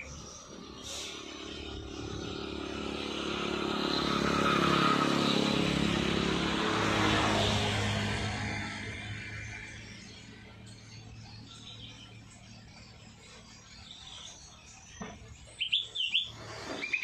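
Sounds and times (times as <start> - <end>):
vehicle passing by: 0.0 - 12.4.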